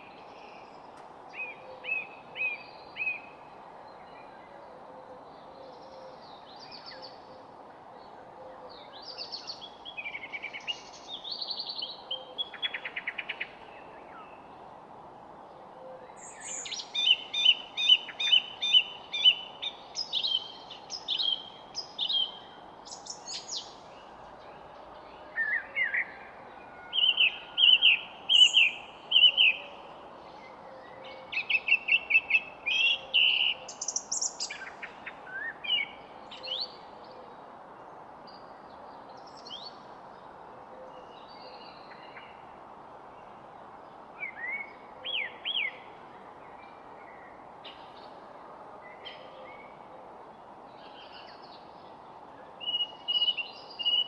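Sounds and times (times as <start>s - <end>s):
steady background hiss: 0.0s - 54.0s
songbirds chirping and whistling: 16.1s - 36.8s.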